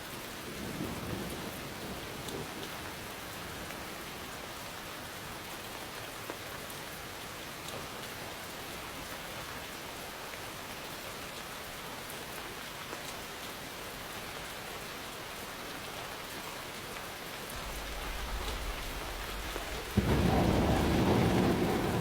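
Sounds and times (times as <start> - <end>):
steady rain: 0.0 - 22.0
distant thunder rumble: 17.6 - 22.0.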